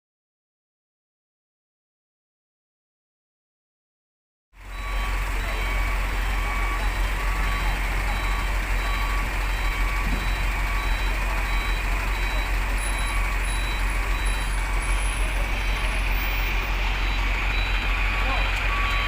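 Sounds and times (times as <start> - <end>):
truck reversing alarm beeping: 4.6 - 19.0.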